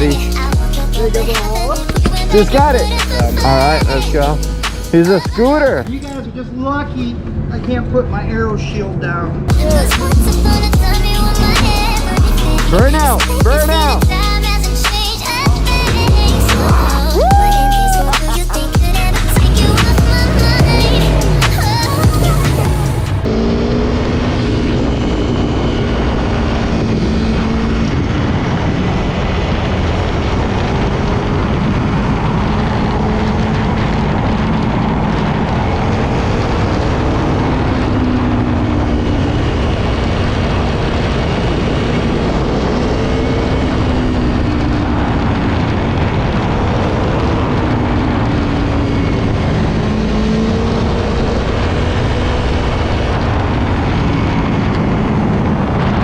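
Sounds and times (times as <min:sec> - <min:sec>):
motorcycle engine running: 0:00.0 - 0:06.2, 0:09.5 - 0:28.9
wind noise: 0:09.3 - 0:56.0.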